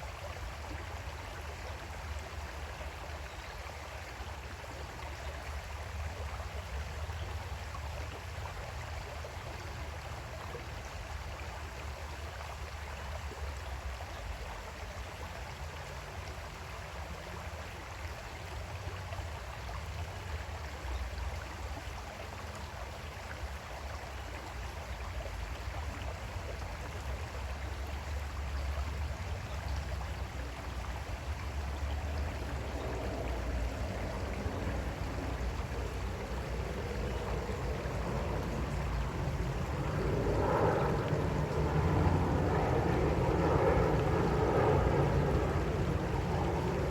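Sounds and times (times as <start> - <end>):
creek water flowing over rocks: 0.0 - 46.9.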